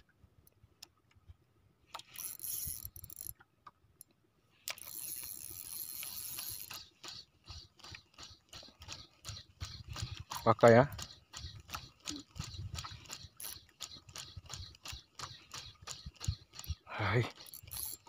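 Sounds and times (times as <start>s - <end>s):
fishing reel clicking: 1.9s - 3.4s, 4.6s - 18.0s.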